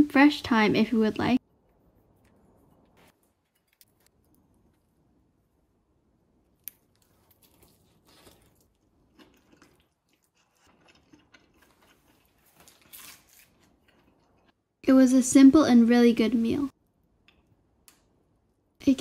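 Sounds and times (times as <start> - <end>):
chewing crispy chicken: 6.8 - 14.6.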